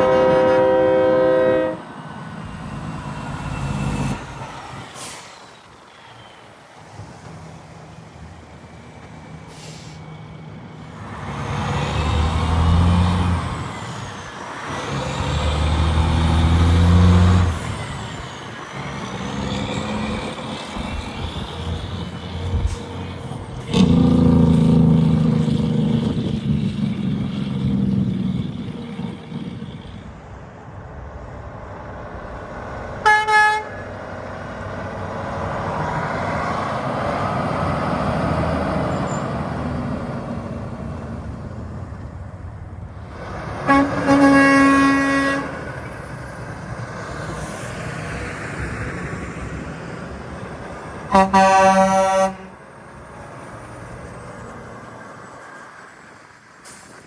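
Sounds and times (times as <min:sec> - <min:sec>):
horn toots: 0:00.0 - 0:01.9, 0:33.0 - 0:33.9, 0:43.6 - 0:45.9, 0:51.1 - 0:52.6
heavy trucks passing: 0:00.0 - 0:57.0.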